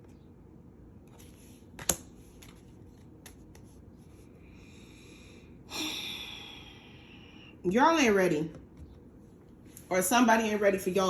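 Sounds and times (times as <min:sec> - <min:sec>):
cards shuffling and rustling: 0:01.1 - 0:04.2.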